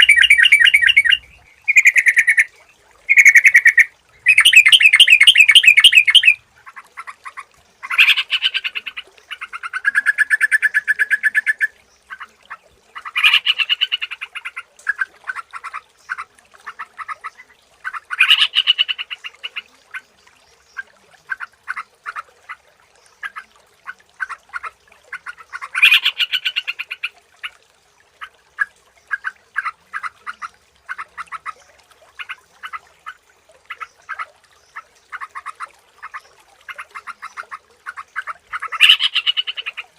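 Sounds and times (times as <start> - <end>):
bird chattering song: 0.0 - 2.5, 3.1 - 6.4, 7.8 - 11.7, 25.5 - 27.1, 36.1 - 39.8
bird chirps: 0.0 - 2.5, 3.1 - 6.4.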